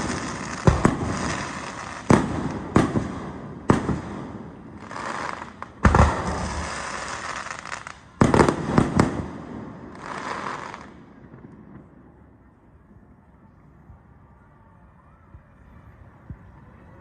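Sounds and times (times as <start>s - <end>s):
fireworks hissing: 0.0s - 3.2s, 4.0s - 10.9s
fireworks banging: 0.0s - 11.9s.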